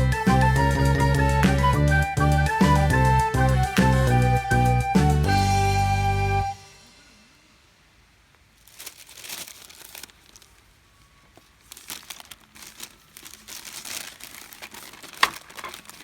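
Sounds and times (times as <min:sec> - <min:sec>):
sheet material crumpling: 0:08.5 - 0:16.0.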